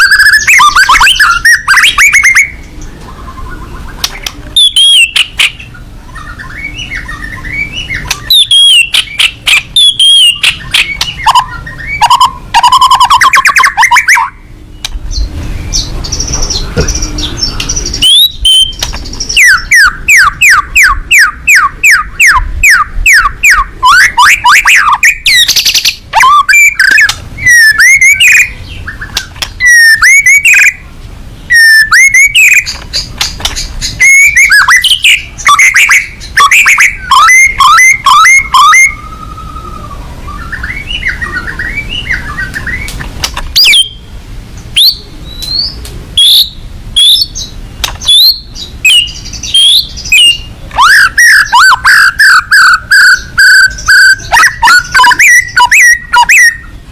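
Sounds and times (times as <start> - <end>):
songbird singing whistles: 0.0 - 30.8, 31.5 - 44.1, 44.8 - 56.8.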